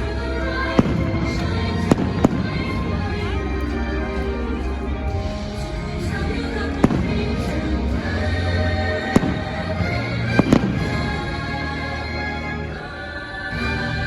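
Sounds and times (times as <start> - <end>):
show music: 0.0 - 14.0
fireworks bangs: 9.0 - 11.2.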